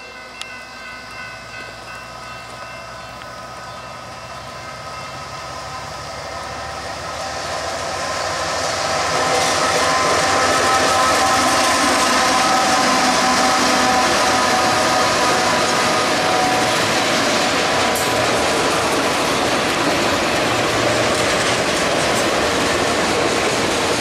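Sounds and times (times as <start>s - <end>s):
freight train engine and wheels rumble: 0.0s - 24.0s
train horn blast: 6.5s - 18.2s.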